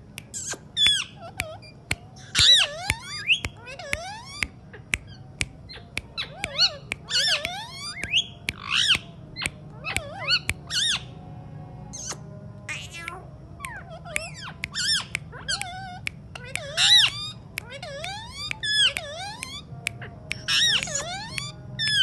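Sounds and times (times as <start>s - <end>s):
sharp clicks: 0.1s - 10.7s
parrot squawking: 0.3s - 11.1s, 12.0s - 22.0s.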